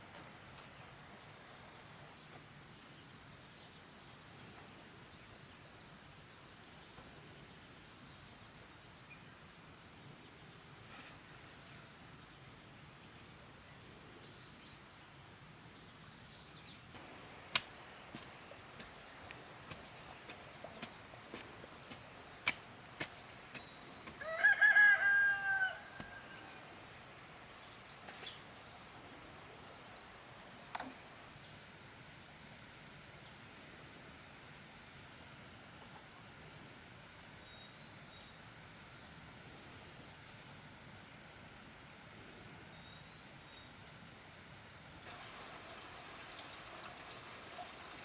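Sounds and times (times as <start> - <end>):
insects chirping chorus: 0.0 - 48.0
sharp clicks or taps: 17.0 - 20.9
rooster crowing: 24.1 - 26.7.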